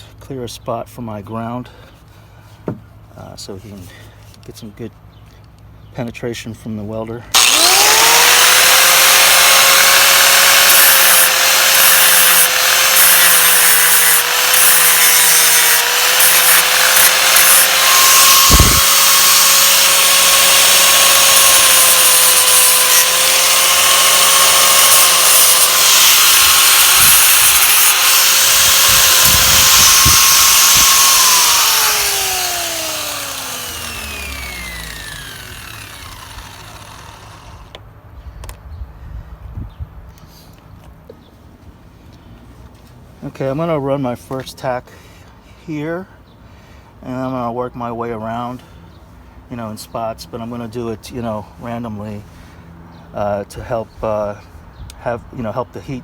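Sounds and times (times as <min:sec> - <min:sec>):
angle grinder grinding metal: 0:07.4 - 0:37.8.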